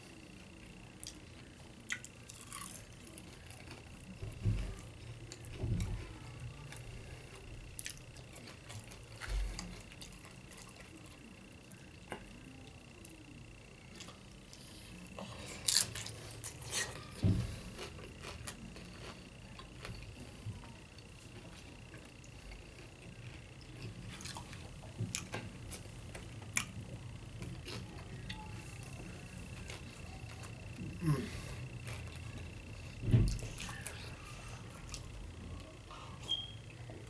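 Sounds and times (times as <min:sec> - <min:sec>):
faint high whine: 0:00.0 - 0:37.0
chips crunching while chewing: 0:01.9 - 0:02.9, 0:15.5 - 0:17.0.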